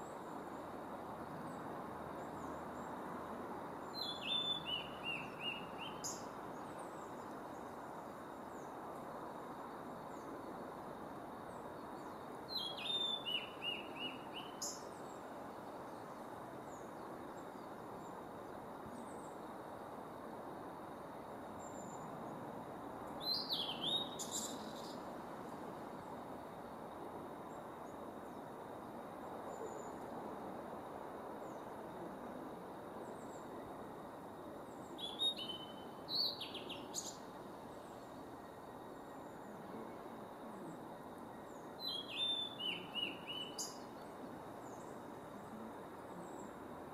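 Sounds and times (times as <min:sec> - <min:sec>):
steady background hiss: 0:00.0 - 0:46.9
bird singing high whistled notes: 0:04.0 - 0:06.2, 0:12.5 - 0:14.8, 0:23.2 - 0:25.0, 0:35.0 - 0:37.2, 0:41.5 - 0:43.9.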